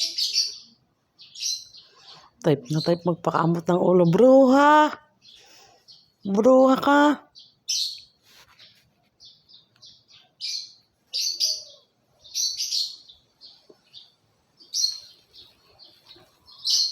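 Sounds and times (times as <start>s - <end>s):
parrots chirping: 0.0s - 3.0s, 9.3s - 16.9s.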